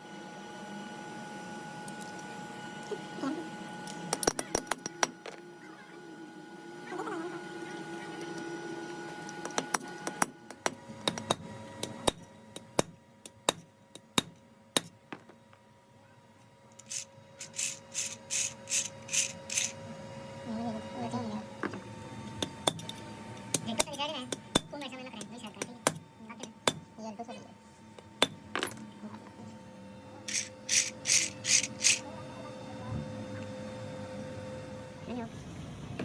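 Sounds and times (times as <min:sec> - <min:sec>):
short raspy strokes: 0:30.3 - 0:32.0.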